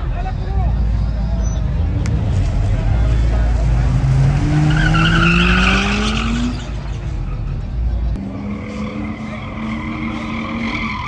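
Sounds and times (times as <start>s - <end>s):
tires squealing: 1.4s - 11.0s
engine revving: 2.0s - 6.7s.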